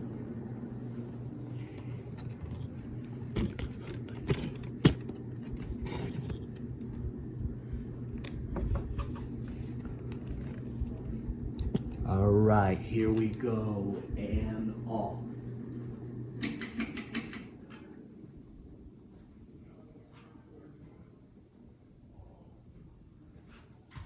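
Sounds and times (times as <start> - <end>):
ceiling fan motor humming: 0.0 - 24.0
sharp clicks and light rattles: 16.4 - 17.5.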